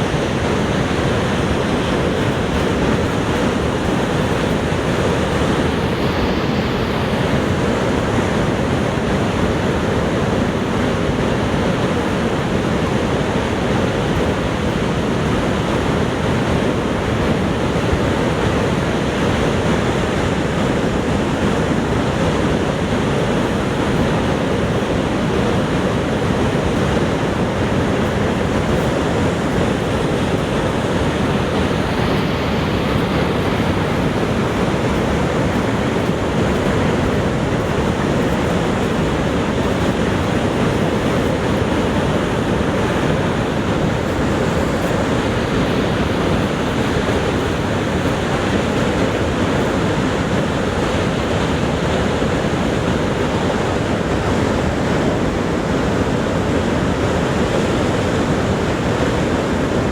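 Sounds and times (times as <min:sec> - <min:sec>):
heavy rush of falling water: 0:00.0 - 0:59.9.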